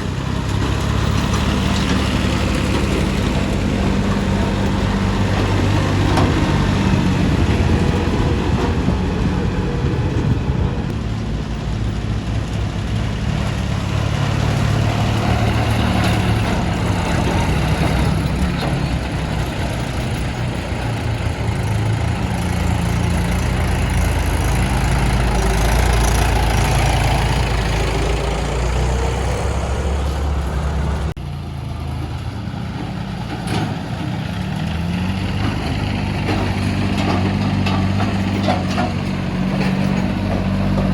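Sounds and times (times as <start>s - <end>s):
diesel tractor engine running: 0.0s - 40.9s.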